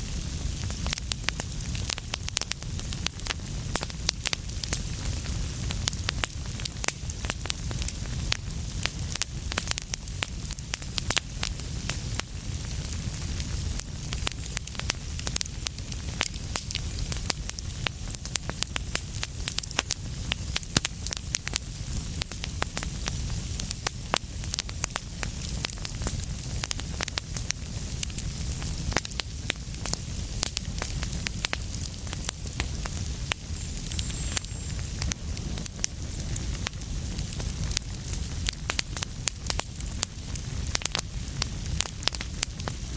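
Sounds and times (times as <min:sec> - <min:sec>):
fireplace fire crackling: 0:00.0 - 0:42.9.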